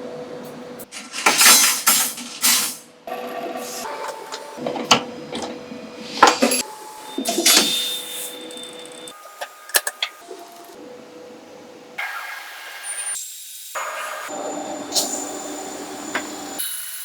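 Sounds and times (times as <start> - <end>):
mechanism clicks and clunks: 4.0 - 5.6.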